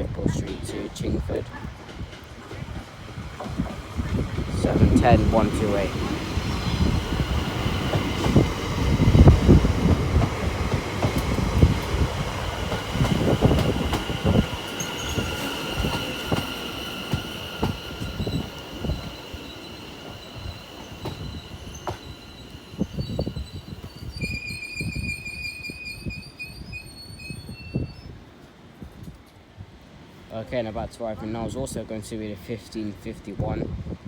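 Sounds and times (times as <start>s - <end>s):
electric train slowing: 1.9s - 28.2s
high-pitched brake squeal: 18.2s - 28.2s.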